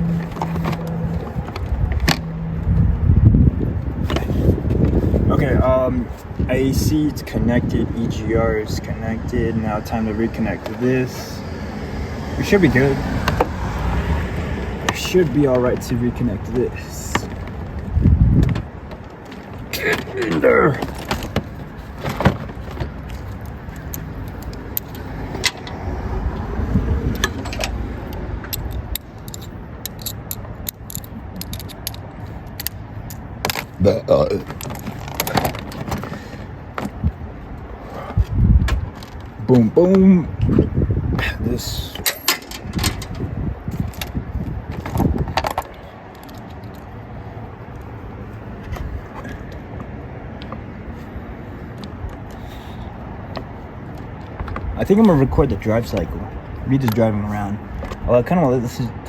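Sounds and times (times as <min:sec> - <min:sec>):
low steady rumble: 0:00.0 - 0:19.2
metallic clicks and clinks: 0:27.1 - 0:33.7
metallic jangling and clinking: 0:41.9 - 0:44.1.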